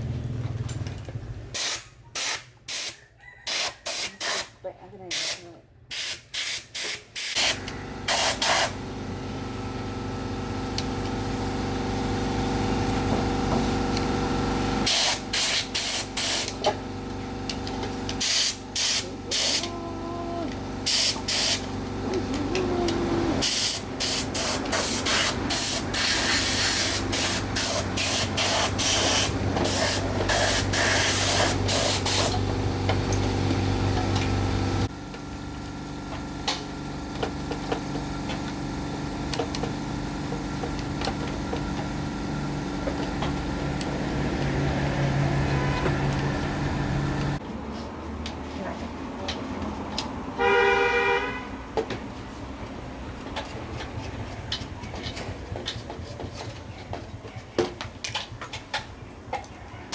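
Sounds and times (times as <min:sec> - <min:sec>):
short hissing spray blasts: 0:01.6 - 0:04.5, 0:05.1 - 0:08.7.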